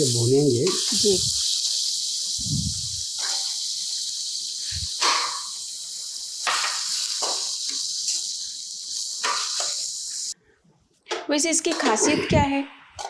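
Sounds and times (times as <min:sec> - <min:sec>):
pumpkin sizzling in hot oil: 0:00.0 - 0:10.4.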